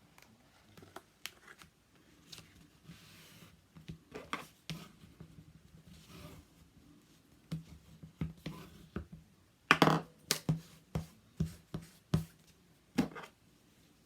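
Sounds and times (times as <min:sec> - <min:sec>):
soft paper rustles: 0:00.0 - 0:03.6.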